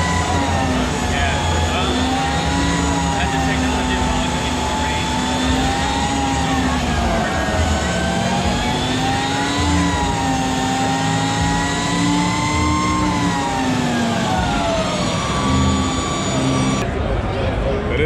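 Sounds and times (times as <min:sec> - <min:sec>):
electric motorcycle motor whining: 0:00.0 - 0:16.8.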